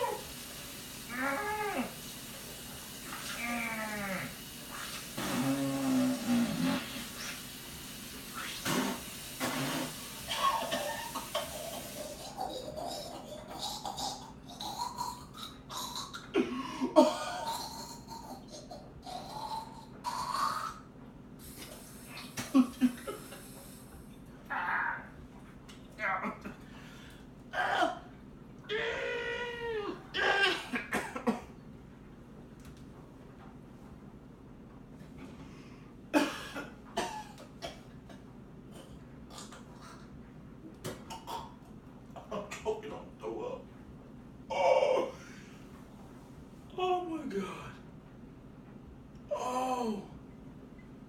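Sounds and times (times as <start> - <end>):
short loud vocal noises: 3.2 - 7.2
man's throat noises: 4.8 - 7.2, 11.6 - 20.9, 37.0 - 40.0
person coughing: 9.4 - 15.2, 30.2 - 31.6, 36.2 - 37.8.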